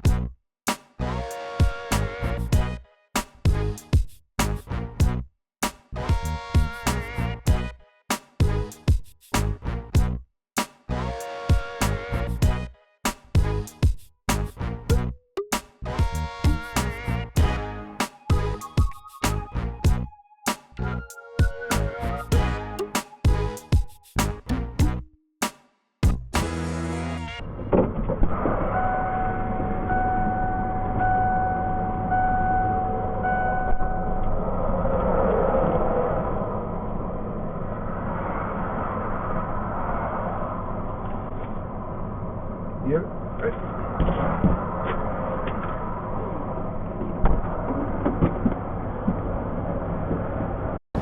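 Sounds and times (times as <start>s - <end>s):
electronic tone beeping: 18.3s - 23.9s.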